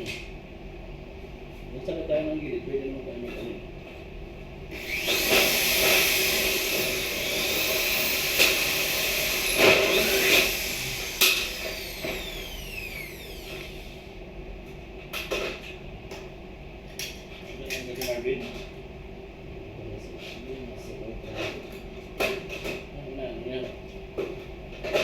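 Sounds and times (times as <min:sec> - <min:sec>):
motor winding down: 0:04.7 - 0:14.1
power tool whirring: 0:04.7 - 0:14.1.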